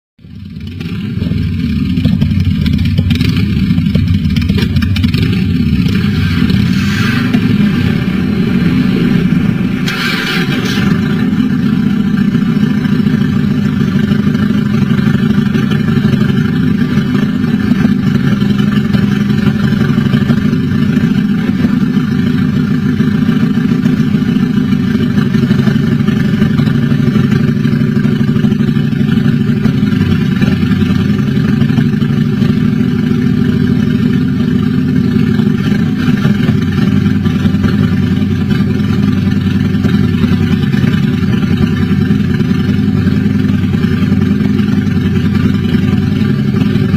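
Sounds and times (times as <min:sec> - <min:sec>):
motorcycle engine running steadily: 0:00.2 - 0:46.9.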